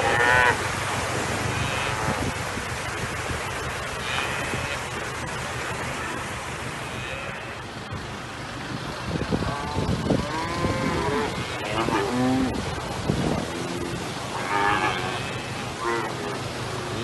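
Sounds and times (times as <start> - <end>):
cattle mooing and bellowing: 0.0 - 0.6, 1.5 - 2.4, 3.9 - 4.9, 6.0 - 7.7, 9.4 - 17.0
rushing floodwater: 0.0 - 17.0.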